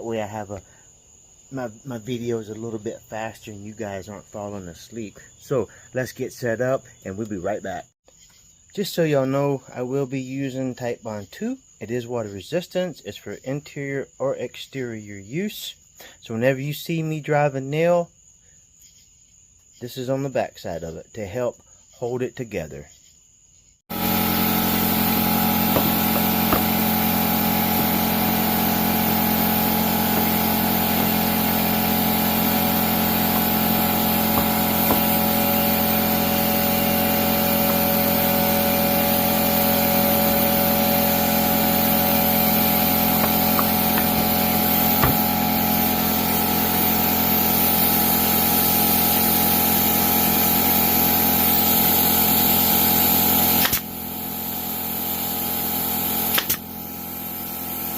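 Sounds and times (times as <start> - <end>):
machine motor humming: 23.9 - 47.3.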